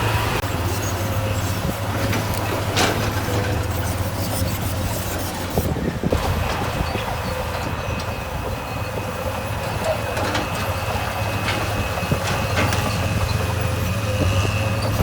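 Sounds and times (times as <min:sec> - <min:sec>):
earthmoving machine diesel engine: 0:00.0 - 0:15.0.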